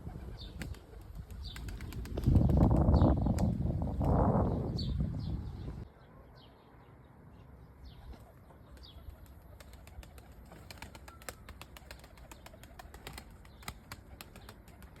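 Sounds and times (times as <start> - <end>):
pigeon wing flaps: 0.1 - 3.6, 8.8 - 15.0.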